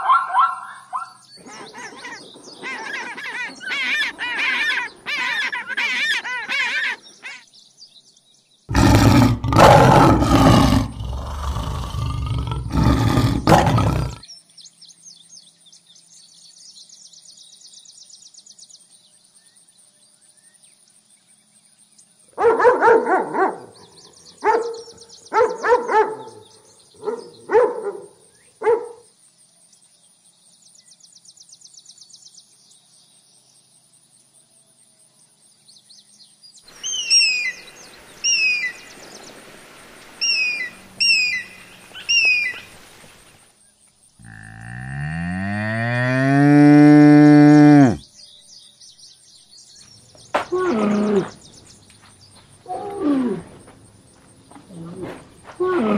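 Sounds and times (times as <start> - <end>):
eagle calling: 0.0 - 7.4, 36.7 - 39.0, 40.1 - 43.2
lion roaring: 8.7 - 14.2, 44.2 - 48.0, 50.4 - 51.4, 54.7 - 55.9
dog barking sharply: 22.4 - 23.6, 27.0 - 28.0.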